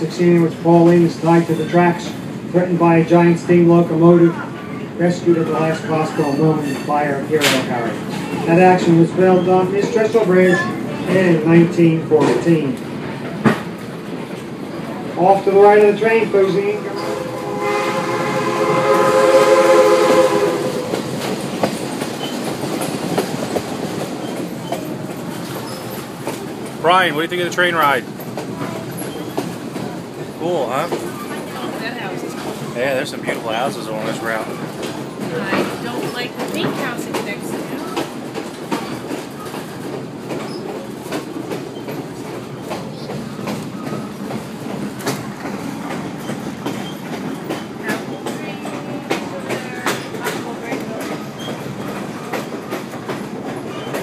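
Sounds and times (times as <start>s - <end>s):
train wheels rumbling: 0.0s - 54.0s
train horn: 16.5s - 21.1s.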